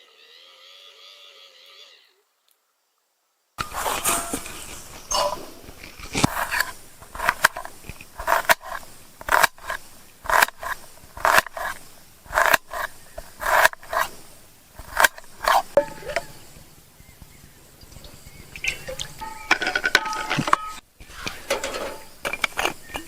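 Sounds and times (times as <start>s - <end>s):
short scraping strokes: 3.6s - 16.5s.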